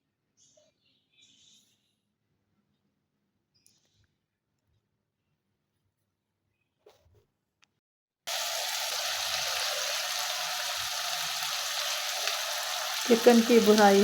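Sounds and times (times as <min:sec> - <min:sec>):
chicken sizzling in oil: 0:08.3 - 0:14.0.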